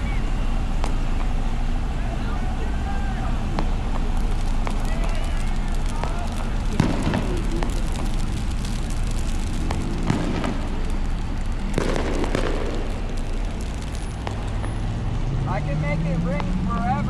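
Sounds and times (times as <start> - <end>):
traffic rumble: 0.0 - 17.0
sharp pops or knocks: 3.6 - 15.0.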